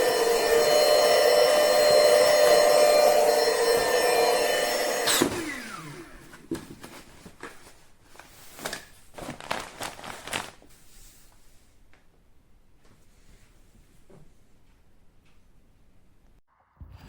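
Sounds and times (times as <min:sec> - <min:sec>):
small electric motor running: 0:00.0 - 0:06.1.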